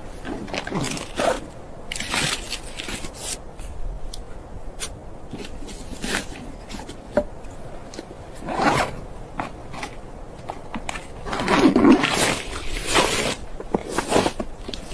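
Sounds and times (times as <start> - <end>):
rubbing and scraping strokes: 4.8 - 14.9.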